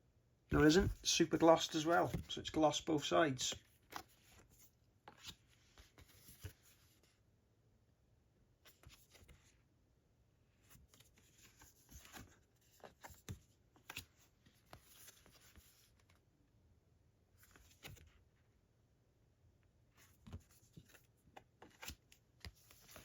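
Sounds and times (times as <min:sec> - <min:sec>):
cards rustling and tapping: 0:00.6 - 0:07.0, 0:10.6 - 0:16.2, 0:20.0 - 0:23.0.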